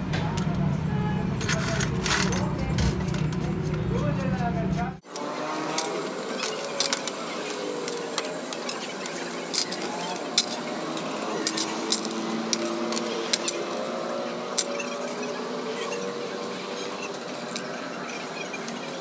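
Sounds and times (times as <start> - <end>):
metal tools clicking: 1.4 - 4.0, 5.1 - 15.2.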